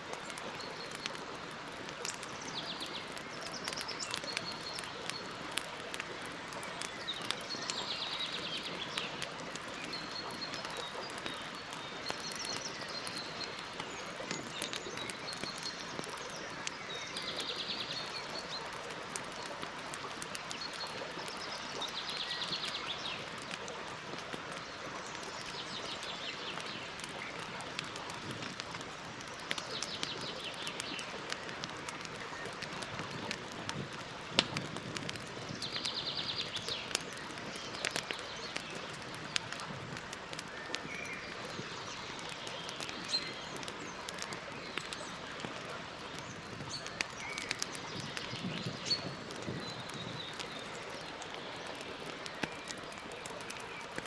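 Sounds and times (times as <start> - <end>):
campfire crackling: 0.0 - 54.0
birds chirping: 2.0 - 19.3, 40.3 - 54.0.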